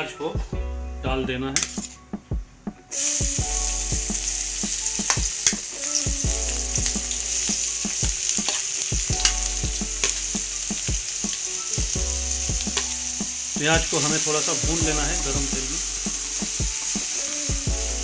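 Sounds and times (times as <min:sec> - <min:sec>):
onion sizzling in hot oil: 0:02.9 - 0:18.0.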